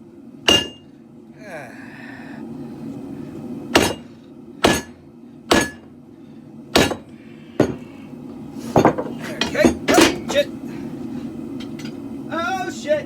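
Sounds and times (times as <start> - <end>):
hammer striking steel on anvil: 0.5 - 0.9, 3.7 - 5.9, 6.7 - 7.8
forge burners rushing: 2.2 - 13.0.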